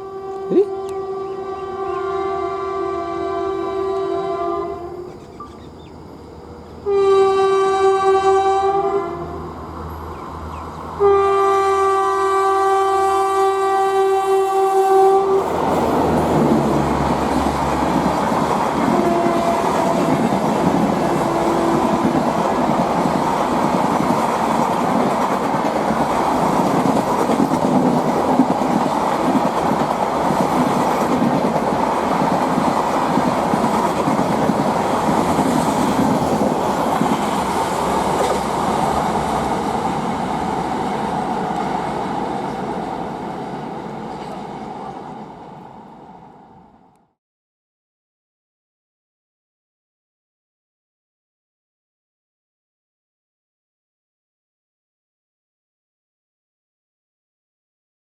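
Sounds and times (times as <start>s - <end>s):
train horn blasts: 0.0s - 5.2s, 6.8s - 9.5s, 10.9s - 15.6s, 18.8s - 20.3s, 20.9s - 22.4s
train wheels rumbling on rails: 15.4s - 45.8s.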